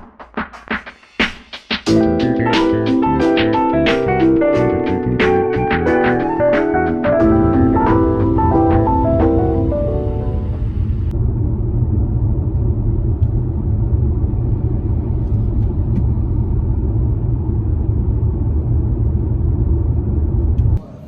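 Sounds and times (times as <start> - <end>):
loud low rumble: 1.9 - 20.8.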